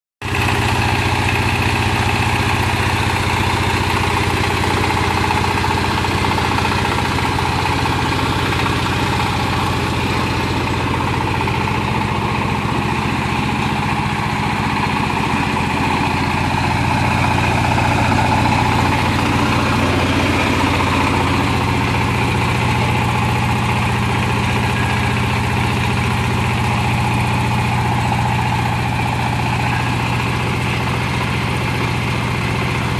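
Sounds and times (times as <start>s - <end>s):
diesel engine running: 0.2s - 32.9s.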